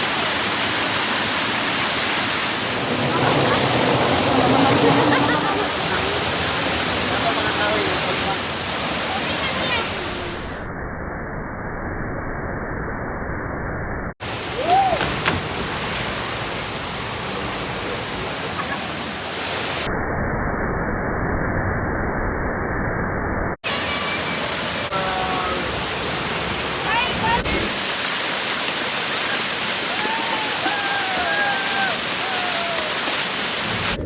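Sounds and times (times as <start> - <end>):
waterfall rushing: 0.0 - 10.6, 14.2 - 19.9, 23.6 - 34.0
voices: 2.4 - 10.6, 17.3 - 19.9, 23.6 - 27.8, 29.0 - 34.0
rising and falling call: 29.9 - 34.0.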